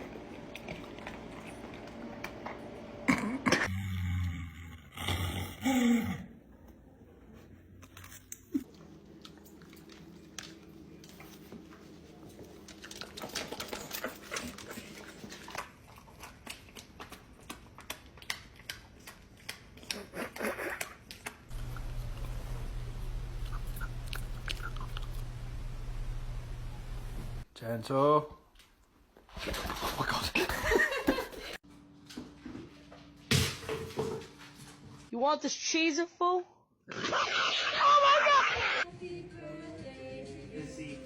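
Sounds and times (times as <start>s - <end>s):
dog chewing wet crunches: 12.5s - 20.1s, 21.6s - 25.4s
steady low hum: 21.5s - 27.5s.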